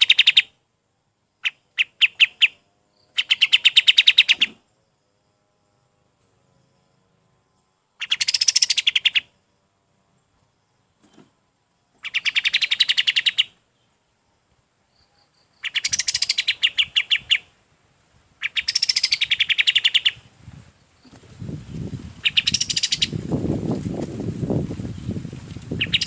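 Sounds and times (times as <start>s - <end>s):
songbird chattering trill: 0.0s - 0.5s, 1.4s - 4.6s, 8.0s - 9.4s, 12.0s - 13.9s, 15.0s - 17.6s, 18.4s - 20.3s, 22.2s - 23.2s, 25.7s - 26.0s.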